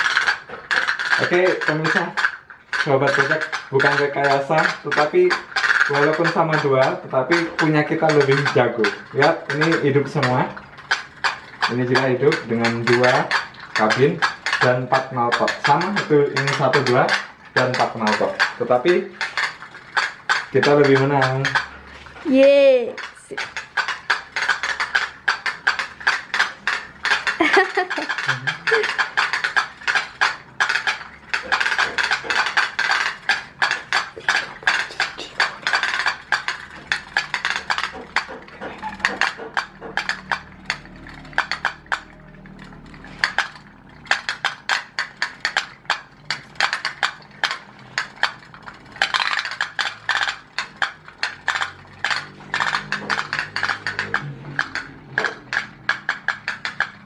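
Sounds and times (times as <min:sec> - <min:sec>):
pop-pop boat engines popping: 0:00.0 - 0:57.0.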